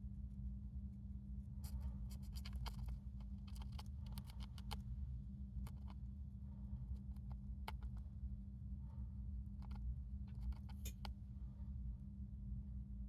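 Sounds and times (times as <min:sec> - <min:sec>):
steady low hum: 0:00.0 - 0:13.0
hamster crunching cabbage: 0:01.5 - 0:06.2, 0:09.5 - 0:11.1.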